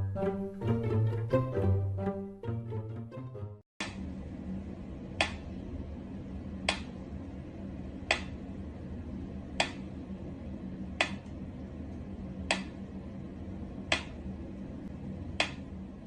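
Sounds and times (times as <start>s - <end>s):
steady low hum: 3.8s - 16.0s
sharp click: 11.0s - 11.3s, 12.5s - 12.8s.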